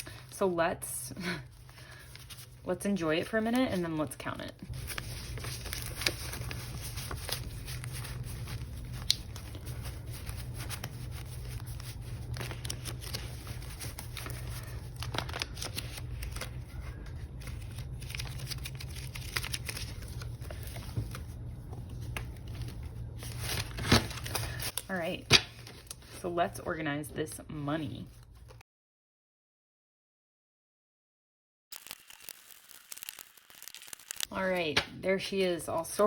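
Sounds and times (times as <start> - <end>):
steady low hum: 0.0 - 28.6
banknotes rustling: 1.4 - 26.2.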